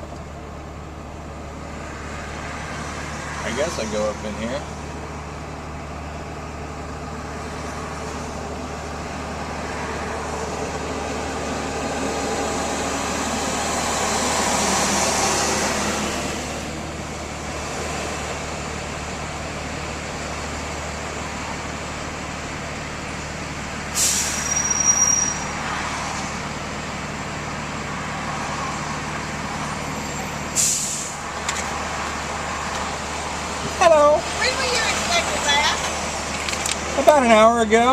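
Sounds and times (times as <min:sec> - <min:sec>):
truck engine running: 0:00.0 - 0:37.9
sharp hissing bursts: 0:30.6 - 0:31.3.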